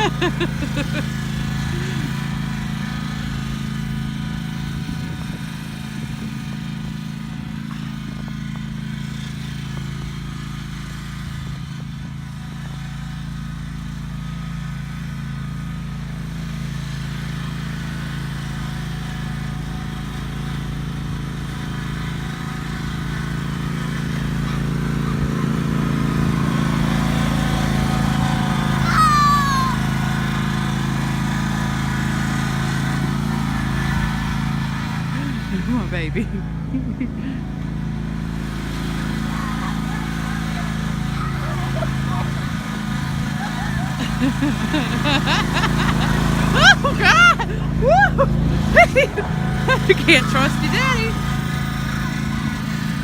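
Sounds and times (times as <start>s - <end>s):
lawn mower engine running: 0.0s - 53.0s
short high falling cry: 28.8s - 29.9s, 46.5s - 48.4s.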